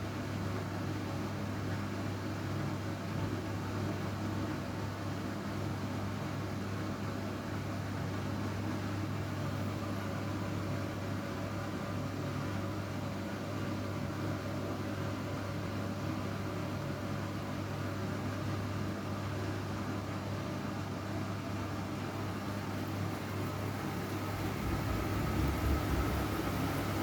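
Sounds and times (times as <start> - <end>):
washing machine motor humming: 17.7 - 27.0.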